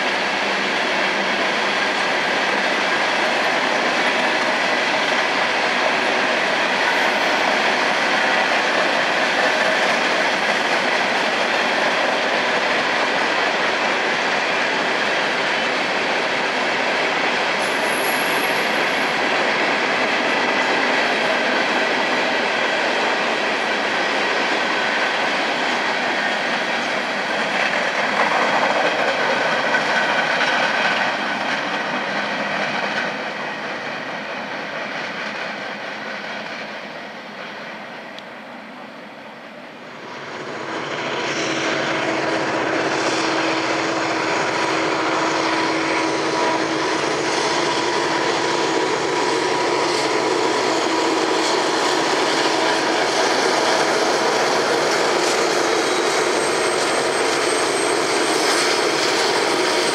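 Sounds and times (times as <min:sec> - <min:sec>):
diesel locomotive hum: 0:00.0 - 0:59.9
train wheels on rails: 0:00.0 - 0:59.9
high wheel squeal: 0:17.6 - 0:19.4, 0:40.9 - 0:59.9.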